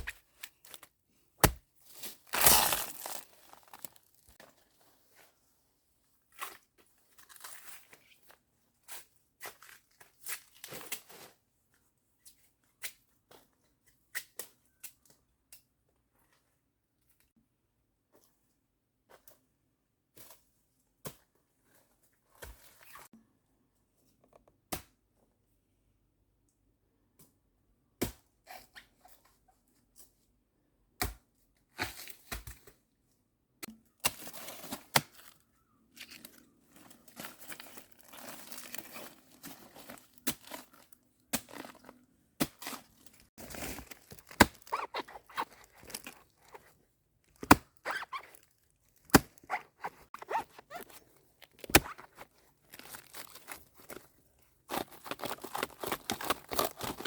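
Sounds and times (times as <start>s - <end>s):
rustling and tearing: 1.9s - 4.4s, 36.0s - 41.9s, 42.5s - 57.0s.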